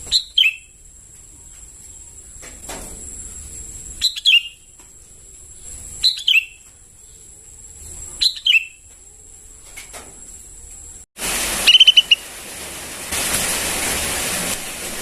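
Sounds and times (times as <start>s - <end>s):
birds double chirping: 0.0s - 0.8s, 3.3s - 4.8s, 5.5s - 8.9s, 11.6s - 12.3s.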